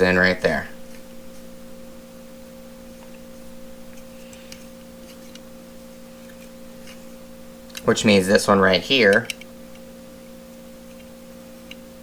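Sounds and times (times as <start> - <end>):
two-tone background hum: 0.0 - 12.0
faint clicks of small parts: 9.1 - 9.9.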